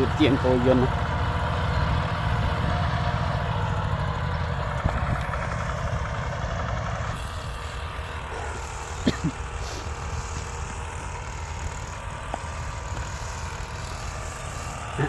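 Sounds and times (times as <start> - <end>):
tractor engine rumbling: 0.0 - 15.0.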